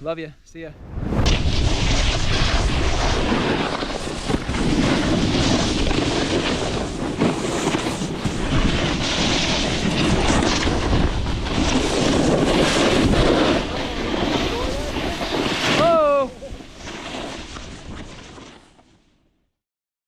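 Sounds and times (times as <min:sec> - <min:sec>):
wind rushing: 0:00.5 - 0:18.1
snowboard sliding over snow: 0:00.9 - 0:18.9.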